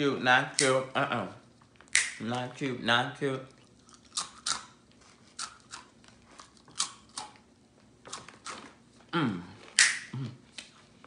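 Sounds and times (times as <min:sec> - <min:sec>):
crunchy chips being chewed: 0:03.5 - 0:08.8
person humming: 0:09.1 - 0:10.4.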